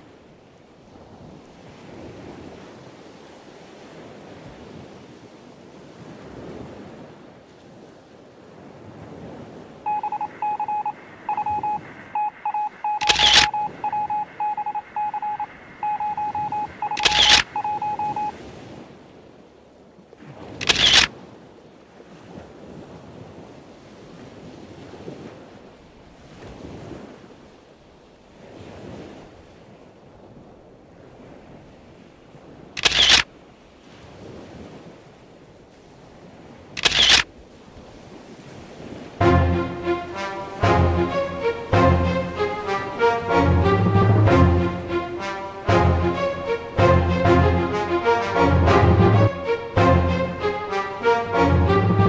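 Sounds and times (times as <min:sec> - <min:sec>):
surf and wind: 0:00.0 - 0:52.0
electronic morse code beeps: 0:09.9 - 0:18.3
camera shutter clicks: 0:13.0 - 0:13.6, 0:16.9 - 0:17.5, 0:20.6 - 0:21.1, 0:32.8 - 0:33.3, 0:36.8 - 0:37.3.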